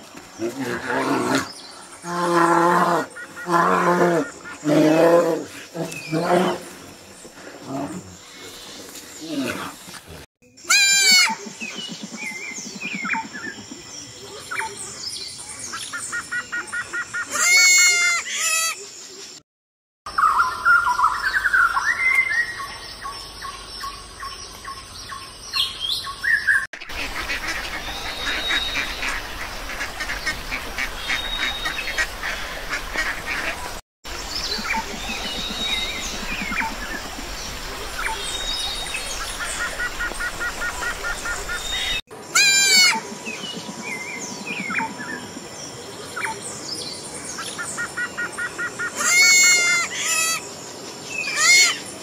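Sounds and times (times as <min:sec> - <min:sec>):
outdoor ambience: 0:00.0 - 0:19.4, 0:20.1 - 0:52.0
birds chirping: 0:20.1 - 0:52.0.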